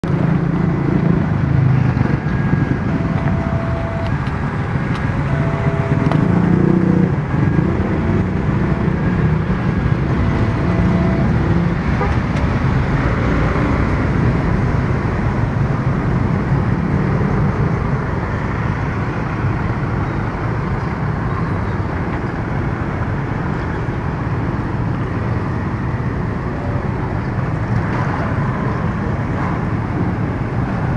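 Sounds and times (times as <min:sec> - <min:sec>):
road traffic: 0:00.0 - 0:30.9
two-pitch warning beeps: 0:02.9 - 0:04.2, 0:05.0 - 0:06.4, 0:10.3 - 0:11.4.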